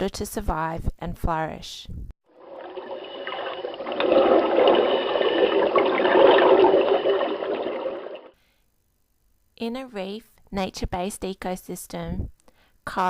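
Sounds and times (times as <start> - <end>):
bubbling gurgling running water: 2.4 - 8.3.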